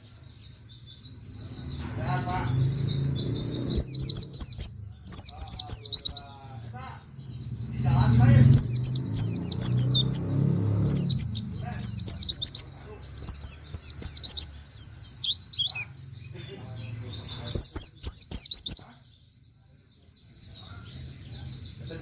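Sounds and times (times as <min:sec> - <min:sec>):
bird chirping rapidly: 0:00.0 - 0:22.0.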